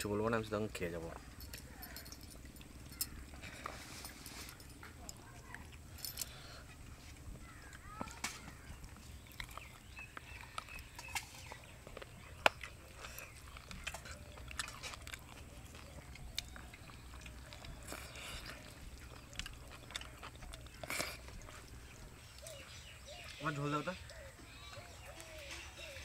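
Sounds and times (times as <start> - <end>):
person chewing and lip-smacking: 8.9 - 23.4.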